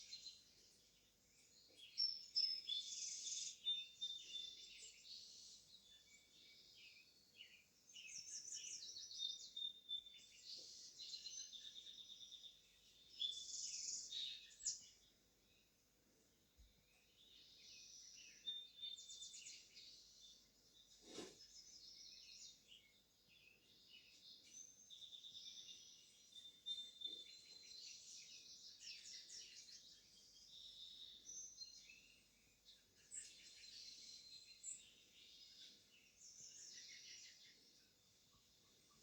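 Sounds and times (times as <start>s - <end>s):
small birds chirping and singing: 0.0s - 39.0s.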